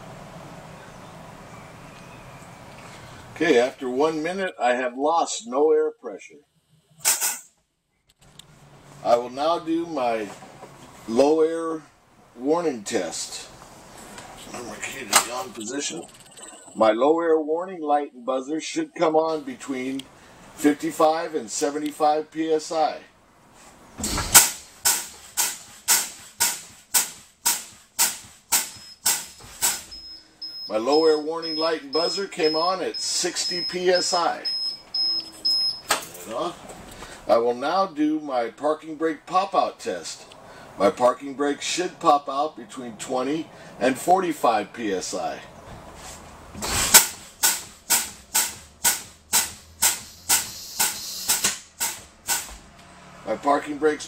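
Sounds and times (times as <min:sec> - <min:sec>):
air brake hissing: 0:24.0 - 0:30.4, 0:46.0 - 0:52.5
warning buzzer beep: 0:29.9 - 0:35.9.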